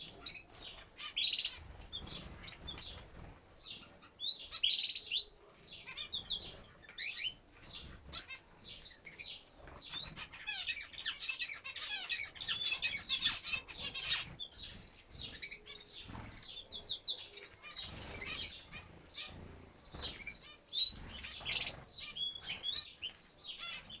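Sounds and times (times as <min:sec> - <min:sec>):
wings fluttering: 0:00.0 - 0:04.1, 0:11.9 - 0:24.0
canaries chirping: 0:00.0 - 0:24.0.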